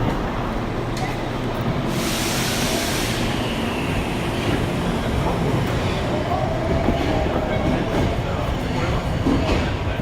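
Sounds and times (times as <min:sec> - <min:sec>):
subway train rumbling on rails: 0:00.0 - 0:10.0
air hiss: 0:01.9 - 0:04.9.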